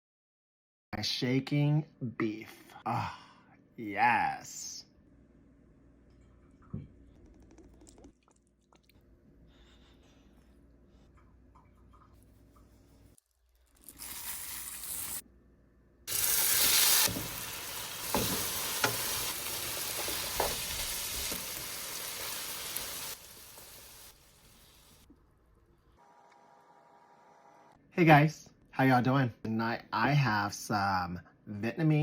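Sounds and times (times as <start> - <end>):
beef sizzling in a hot pan: 13.9 - 15.2, 16.1 - 25.0.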